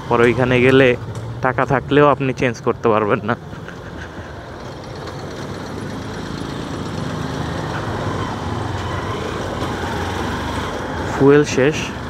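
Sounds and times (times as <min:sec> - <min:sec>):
motorcycle engine running: 0:04.4 - 0:10.6.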